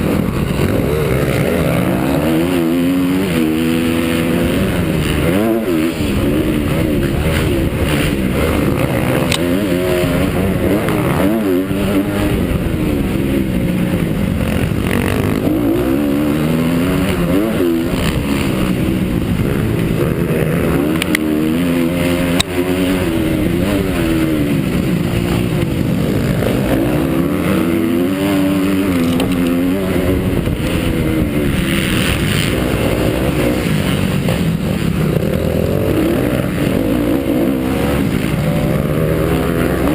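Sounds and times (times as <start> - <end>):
motocross bike engine revving: 0.0 - 39.9
wind noise on microphone: 27.6 - 36.8.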